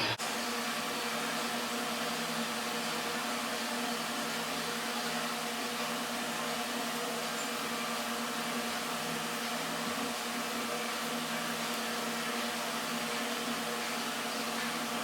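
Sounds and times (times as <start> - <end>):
machine hum: 0.0 - 0.4.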